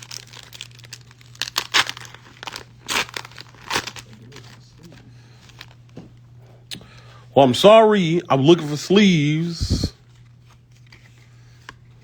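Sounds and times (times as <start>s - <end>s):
card packaging crinkling: 0.0s - 4.8s
low electrical hum: 0.0s - 12.0s.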